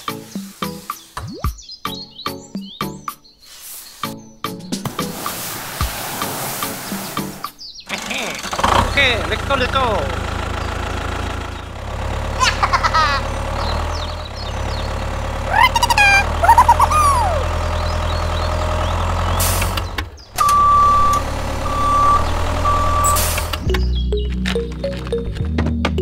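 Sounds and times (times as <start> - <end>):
tractor engine droning: 7.9 - 25.3
high sliding calls: 15.5 - 17.7
reversing beeps: 20.4 - 23.6.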